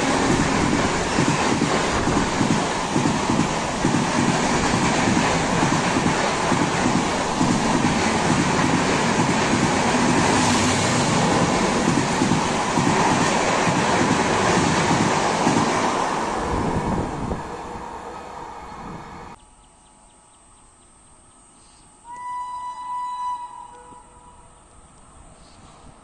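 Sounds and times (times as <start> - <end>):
train passing at speed: 0.0 - 19.4.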